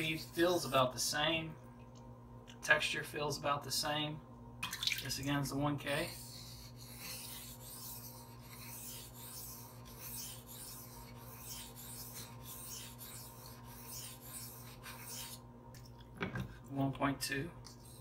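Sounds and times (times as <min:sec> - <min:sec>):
steady low hum: 0:00.0 - 0:18.0
knife rasping on sharpening stone: 0:06.0 - 0:15.4, 0:17.7 - 0:18.0.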